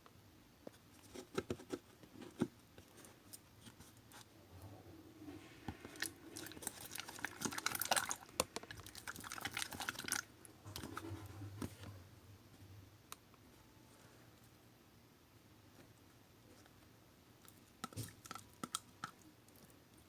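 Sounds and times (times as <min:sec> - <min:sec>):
slime squishing: 0:05.7 - 0:11.2.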